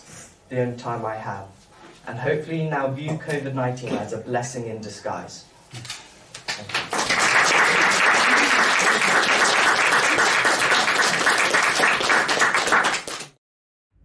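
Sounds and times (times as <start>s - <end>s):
audience applauding: 6.5s - 13.4s.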